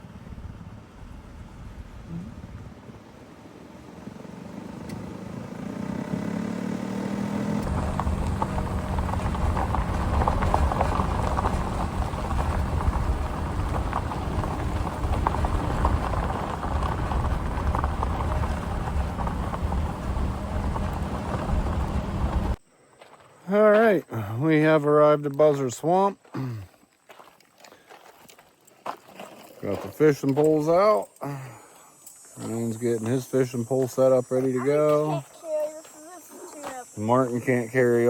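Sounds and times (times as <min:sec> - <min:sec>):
car engine accelerating: 0:00.0 - 0:22.6
tyre noise on road: 0:00.0 - 0:23.4, 0:31.5 - 0:38.0.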